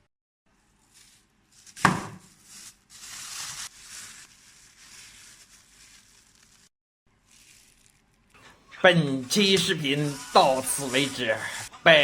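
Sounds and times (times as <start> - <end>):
crinkly rustling and crackling: 2.4 - 8.4.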